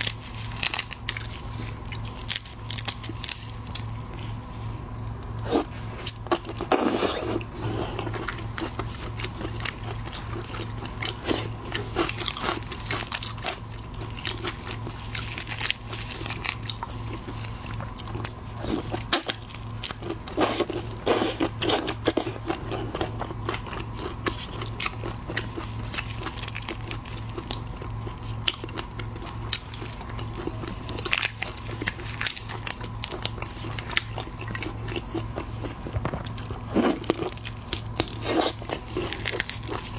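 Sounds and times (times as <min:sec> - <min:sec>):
constant low hum: 0:00.0 - 0:39.9
crunching and chewing shellfish: 0:00.0 - 0:39.9.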